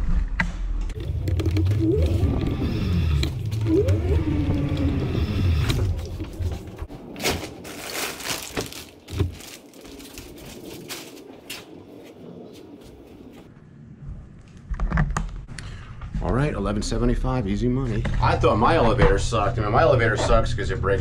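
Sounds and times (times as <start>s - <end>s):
low rumble with rising whine: 0.8s - 14.7s, 15.4s - 21.0s
rustling and clatter: 5.7s - 13.5s
footsteps walking away: 5.8s - 13.5s.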